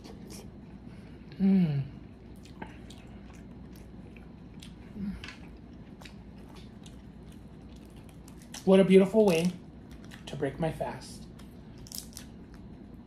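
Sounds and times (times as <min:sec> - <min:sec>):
wet chewing: 0:02.2 - 0:10.4.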